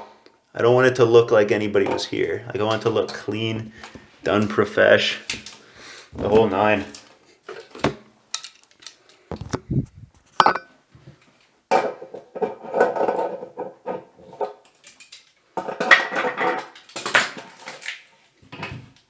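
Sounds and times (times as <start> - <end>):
metal hardware clinking and knocking: 10.4 - 10.6.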